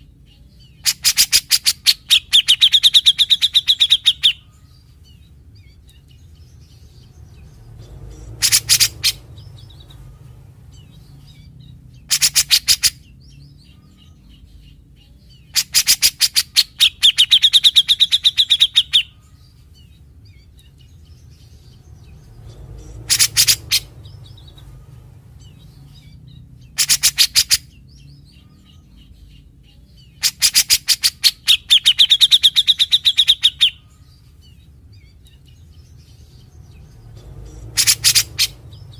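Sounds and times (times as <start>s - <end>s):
bird chattering and trilling: 0.0s - 38.9s.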